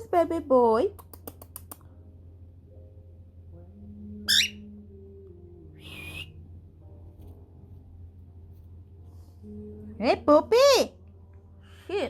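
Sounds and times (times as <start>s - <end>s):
cockatiel chirping: 4.3s - 4.6s.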